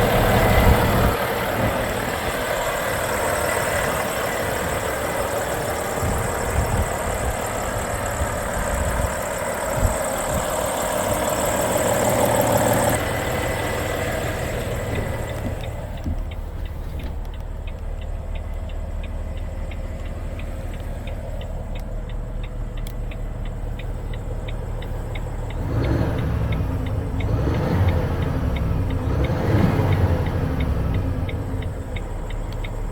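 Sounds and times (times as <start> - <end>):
diesel truck engine idling: 0.0 - 32.9
light ticking: 9.2 - 32.9.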